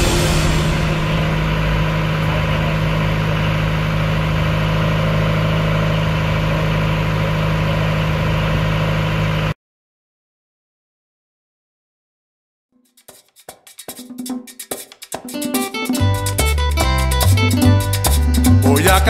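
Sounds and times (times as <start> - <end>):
boat engine humming: 0.0 - 9.5.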